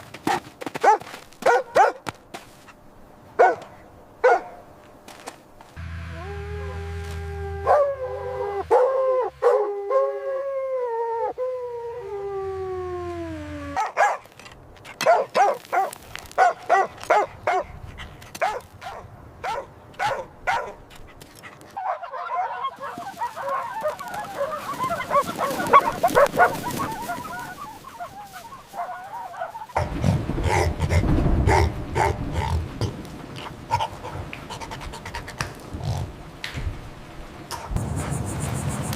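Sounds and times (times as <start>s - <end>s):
low rumble: 5.8s - 10.1s
puppy howling: 6.2s - 13.9s
puppies yipping and barking: 7.6s - 10.2s, 21.8s - 29.8s.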